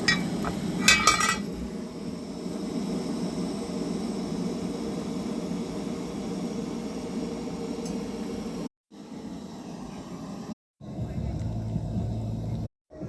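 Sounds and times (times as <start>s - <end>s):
cookware clinking against pot: 0.0s - 1.5s.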